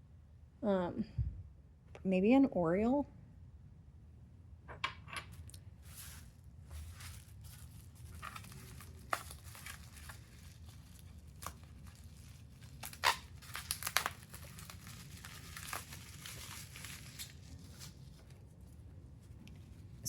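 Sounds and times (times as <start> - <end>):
bubble wrap and paper crinkling: 5.3 - 20.0.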